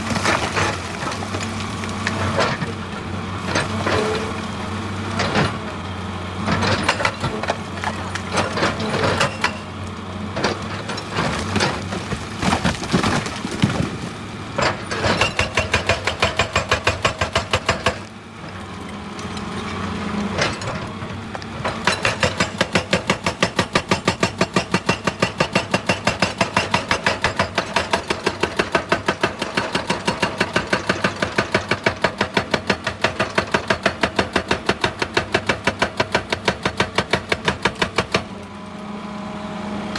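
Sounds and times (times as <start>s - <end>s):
excavator diesel engine droning: 0.0s - 12.4s, 13.8s - 22.6s, 38.0s - 39.9s
rock cracking and crunching: 11.0s - 14.2s.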